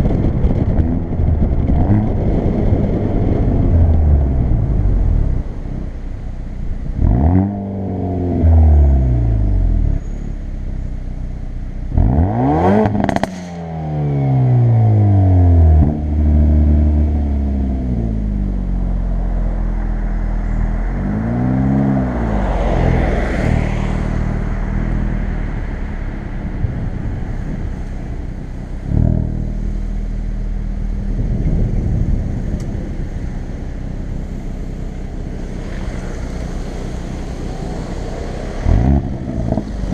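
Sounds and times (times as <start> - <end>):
exhaust cracks: 0.0 - 8.6, 20.8 - 39.9
car engine revving: 0.0 - 10.1, 11.7 - 39.9.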